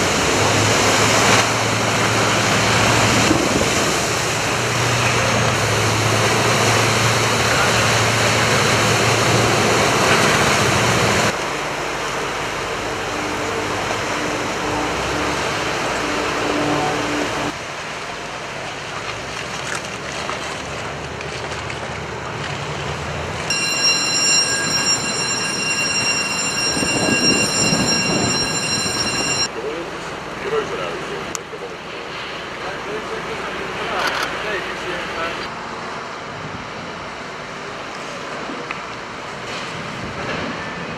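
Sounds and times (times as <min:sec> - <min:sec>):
rushing water: 0:00.0 - 0:29.3
steady high tones: 0:23.5 - 0:29.5
wind noise: 0:23.5 - 0:29.5.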